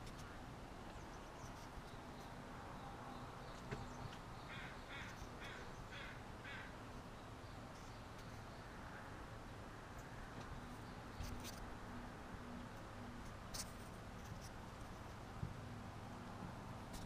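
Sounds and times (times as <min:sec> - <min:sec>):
bird rough calls: 0:04.4 - 0:06.7.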